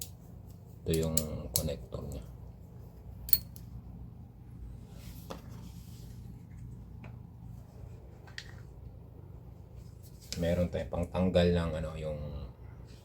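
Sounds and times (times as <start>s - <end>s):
steady low hum: 0.0s - 13.0s
hand tools clicking: 3.3s - 3.5s
soft rustling: 4.7s - 8.9s, 9.5s - 10.7s.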